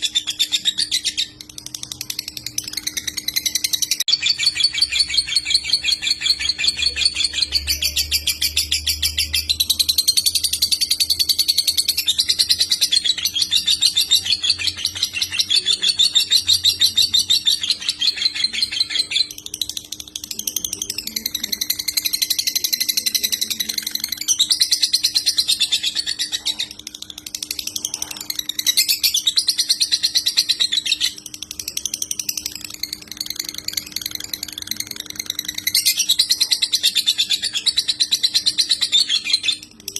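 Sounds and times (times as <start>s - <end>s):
lovebird chattering trills: 0.0s - 39.9s.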